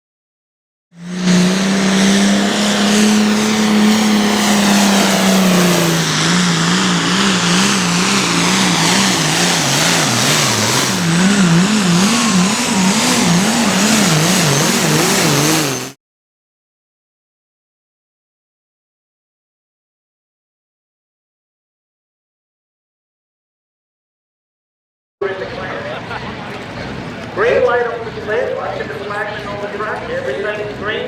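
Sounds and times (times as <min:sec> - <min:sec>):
tractor engine at full throttle: 0:01.0 - 0:16.0, 0:25.2 - 0:31.0.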